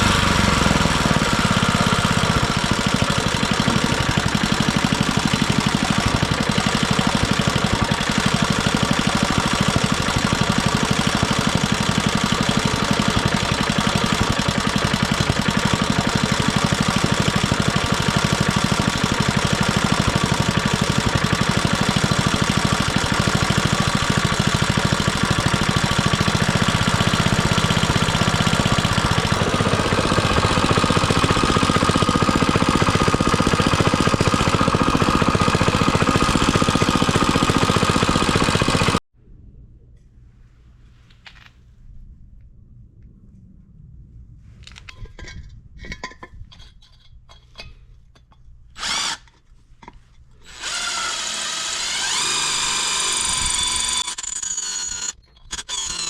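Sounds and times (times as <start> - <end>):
plate compactor engine running: 0.0 - 39.0, 50.4 - 56.0.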